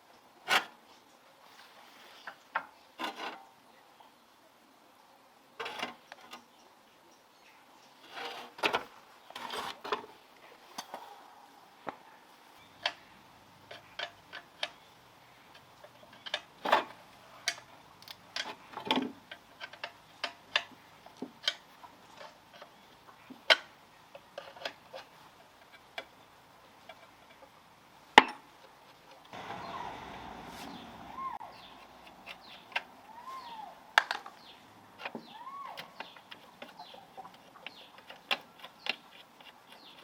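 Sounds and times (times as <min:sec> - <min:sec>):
metal engine parts clicking: 0:29.4 - 0:35.2.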